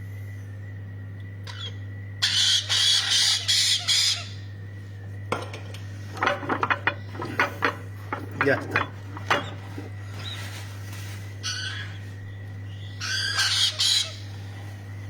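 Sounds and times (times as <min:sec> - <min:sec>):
parrot squawking: 0:01.5 - 0:04.4, 0:12.8 - 0:14.3
clattering clicks: 0:05.3 - 0:10.0.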